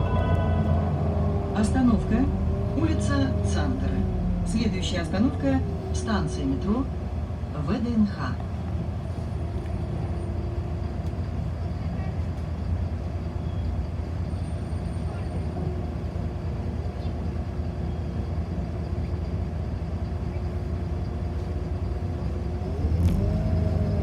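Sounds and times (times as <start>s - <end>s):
constant tones: 0.0s - 6.8s
bus engine humming: 0.0s - 24.0s.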